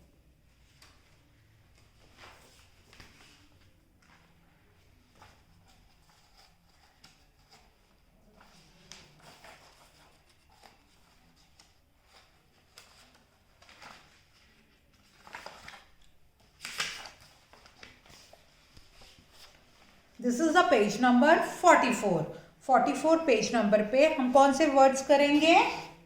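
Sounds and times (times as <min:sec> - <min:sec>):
book pages turning: 0:00.6 - 0:20.2
paper rustling: 0:00.6 - 0:20.2.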